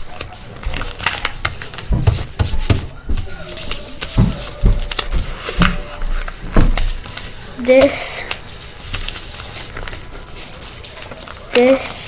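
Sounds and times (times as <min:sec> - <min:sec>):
paper folding and crinkling: 0:00.0 - 0:12.0
dull bumps: 0:01.8 - 0:07.0.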